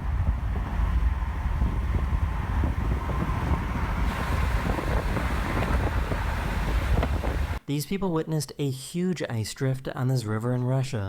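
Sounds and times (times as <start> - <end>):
wind buffeting microphone: 0.0 - 7.6
wind hiss: 0.0 - 7.6.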